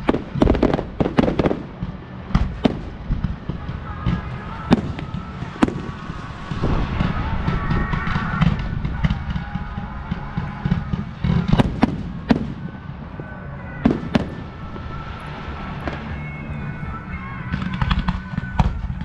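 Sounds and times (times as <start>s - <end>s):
loud firework shell bangs: 0.0s - 12.8s
fireworks crackling: 0.0s - 19.0s.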